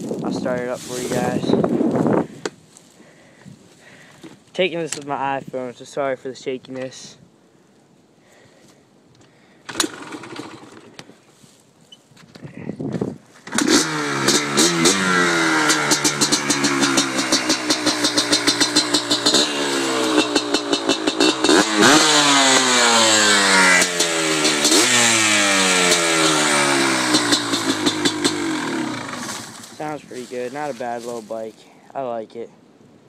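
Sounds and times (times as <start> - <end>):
engine starting: 9.6 - 11.0, 13.4 - 14.4
two-stroke engine revving: 9.7 - 11.0, 13.4 - 30.3
two-stroke exhaust popping: 9.7 - 11.0, 13.4 - 30.6.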